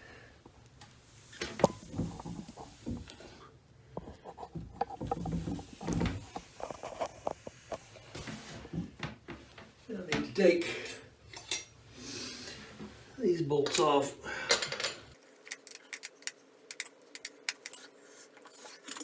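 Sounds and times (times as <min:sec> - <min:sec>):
hand tools clicking and rattling: 0:14.5 - 0:18.0, 0:18.6 - 0:19.0.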